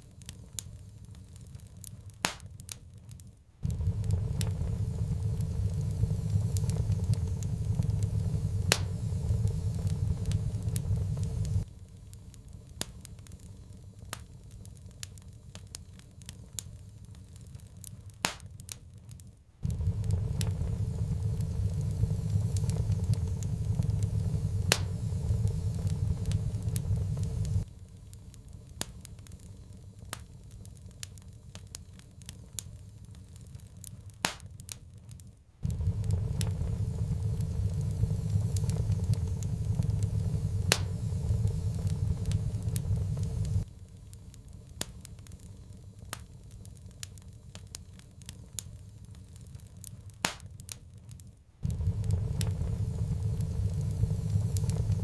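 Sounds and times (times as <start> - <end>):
wood fire crackling: 0.0 - 55.0
low rumble: 3.6 - 11.7, 19.6 - 27.7, 35.6 - 43.7, 51.6 - 55.0.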